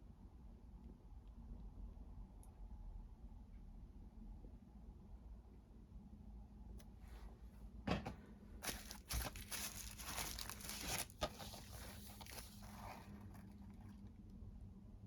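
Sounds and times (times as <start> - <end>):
packaging crinkling and tearing: 8.6 - 14.0.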